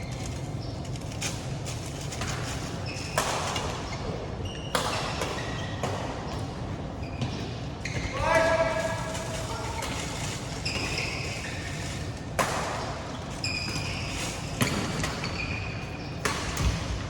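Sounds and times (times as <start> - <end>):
racket hitting shuttlecock: 2.2 - 4.0, 4.6 - 6.5, 12.2 - 17.0.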